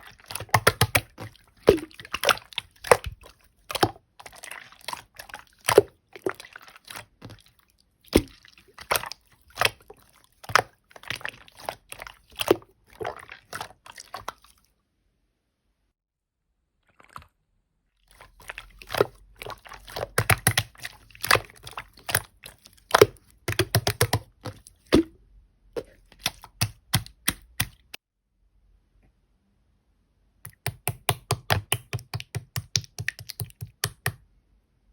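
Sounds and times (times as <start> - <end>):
slime squished by hand: 0.0 - 14.6, 18.1 - 25.2, 25.8 - 28.0.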